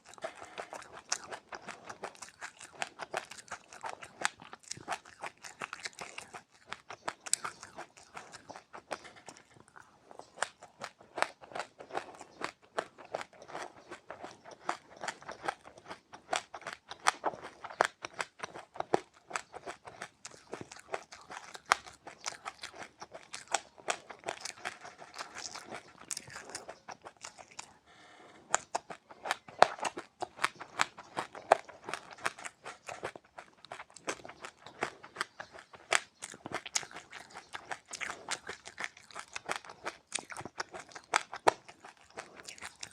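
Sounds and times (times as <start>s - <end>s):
person chewing crunchy seeds: 0.0s - 42.9s.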